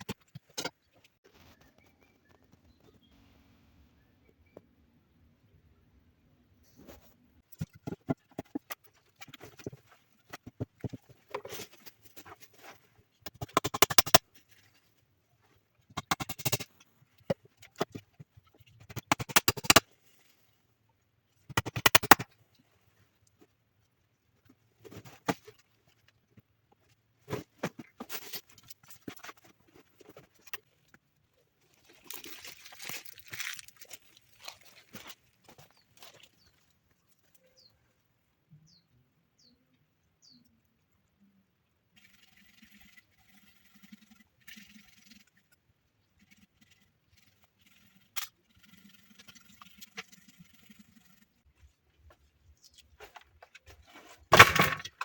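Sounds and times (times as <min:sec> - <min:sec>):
rapid scraping bursts: 0:42.0 - 0:51.5.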